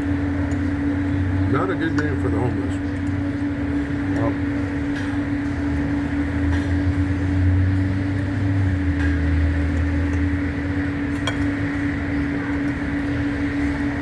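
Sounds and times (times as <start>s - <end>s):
droning mechanical hum: 0.0s - 14.0s.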